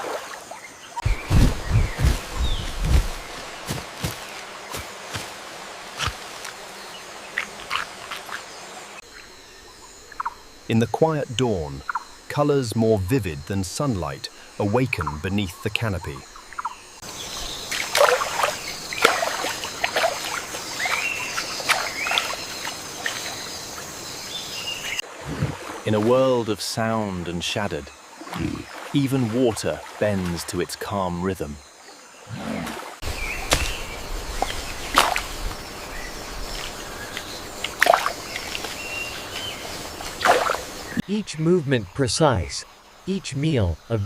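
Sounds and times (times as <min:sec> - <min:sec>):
water trickling and splashing: 0:00.0 - 0:08.6, 0:16.6 - 0:23.9, 0:24.8 - 0:27.3, 0:28.0 - 0:31.0, 0:32.5 - 0:35.8, 0:36.4 - 0:41.0
natural background noise: 0:00.0 - 0:44.0
steady high hiss: 0:01.0 - 0:29.1, 0:33.0 - 0:44.0
whip-like bird calls: 0:40.2 - 0:41.0.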